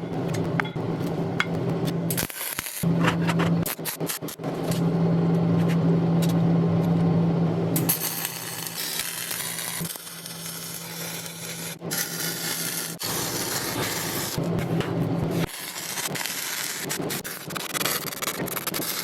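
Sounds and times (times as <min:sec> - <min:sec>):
arc welding crackling: 0:01.5 - 0:04.8, 0:07.8 - 0:19.0.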